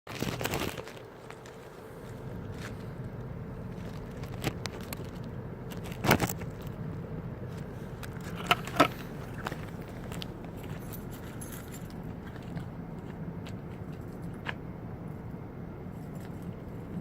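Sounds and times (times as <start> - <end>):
steady low hum: 0.2 - 17.0
sharp clicks and rattles: 3.8 - 6.8, 8.0 - 12.7.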